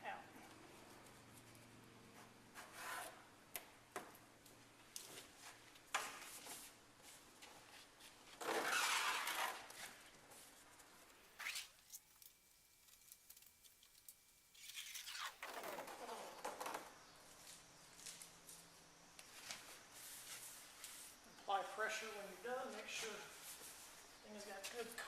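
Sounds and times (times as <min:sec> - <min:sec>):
adhesive tape liner peeling rip: 0:11.4 - 0:12.0, 0:14.6 - 0:16.0.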